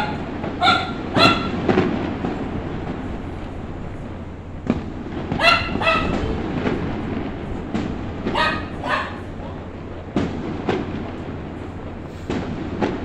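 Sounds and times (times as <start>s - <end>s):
dog barking: 0.0s - 1.6s, 5.4s - 6.3s, 8.3s - 9.7s
distant fireworks rumble: 0.0s - 13.0s
firework bangs: 0.0s - 13.0s.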